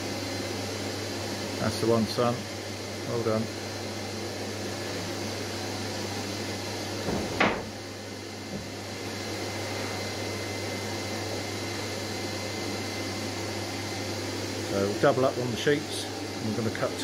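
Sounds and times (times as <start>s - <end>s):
wooden knock: 7.0s - 7.7s.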